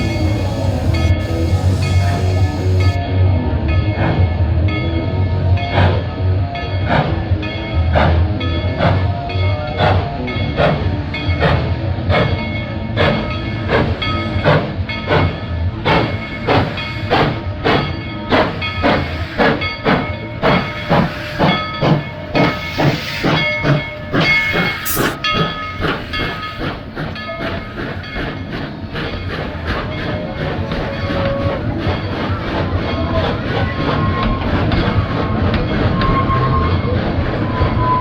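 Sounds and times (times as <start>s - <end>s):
steam hissing: 0.0s - 3.0s, 16.0s - 30.1s
steam locomotive chuffing: 0.0s - 3.0s, 9.8s - 36.5s.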